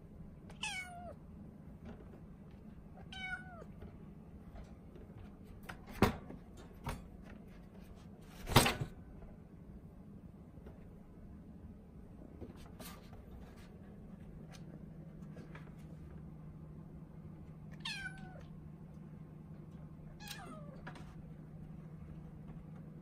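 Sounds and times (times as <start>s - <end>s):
kitten meowing: 0.5s - 1.2s, 3.0s - 3.7s, 17.8s - 18.5s, 20.2s - 20.8s.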